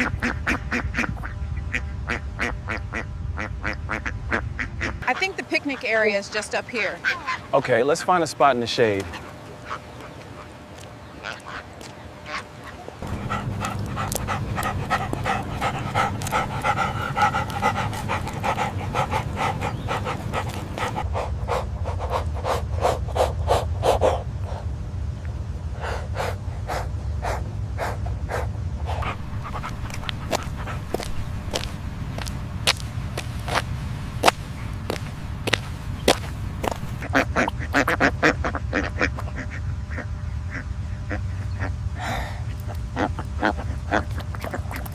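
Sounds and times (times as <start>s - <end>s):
steady low hum: 0.0s - 44.9s
dog panting: 13.0s - 24.7s, 25.8s - 37.2s.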